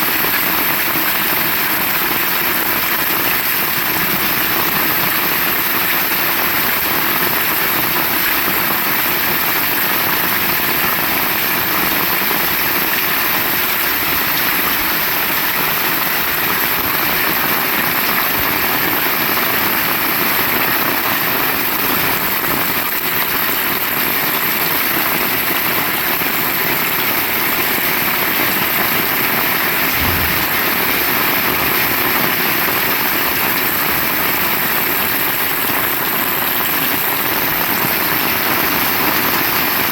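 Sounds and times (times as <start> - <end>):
heavy rain pouring: 0.0 - 39.9
low bump: 29.8 - 32.5.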